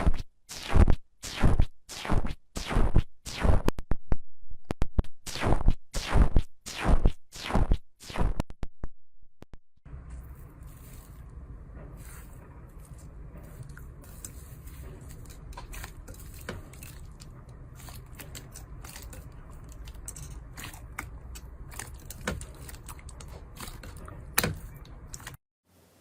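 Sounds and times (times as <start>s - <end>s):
low steady hum: 9.9s - 26.0s.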